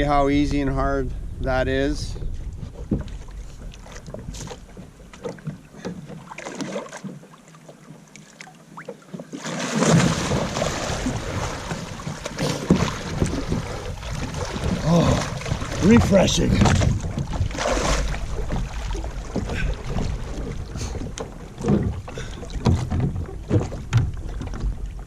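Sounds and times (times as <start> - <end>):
water splashing: 2.1 - 25.0
knocks on plastic hull: 21.1 - 24.8.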